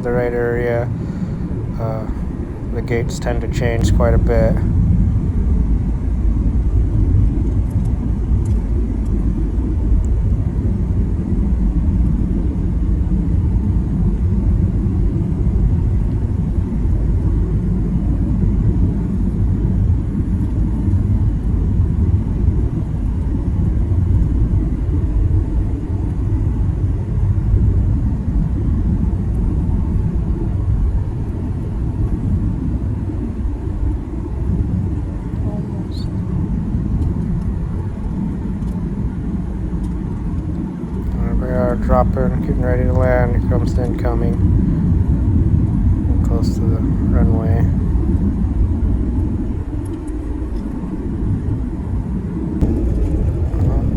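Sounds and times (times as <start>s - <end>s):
jet engine rumble in cabin: 0.0s - 53.9s.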